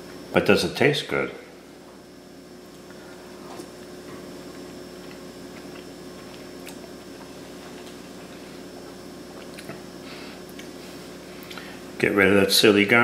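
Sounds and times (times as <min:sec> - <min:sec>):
room tone hum: 0:00.0 - 0:13.0
faint chewing and mouth sounds: 0:02.6 - 0:10.8, 0:11.4 - 0:11.8.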